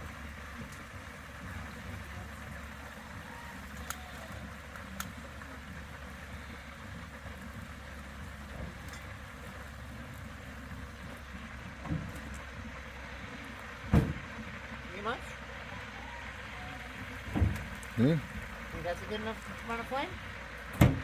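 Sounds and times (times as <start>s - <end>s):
oil bubbling: 0.0s - 21.0s
propane burner hissing: 0.0s - 21.0s.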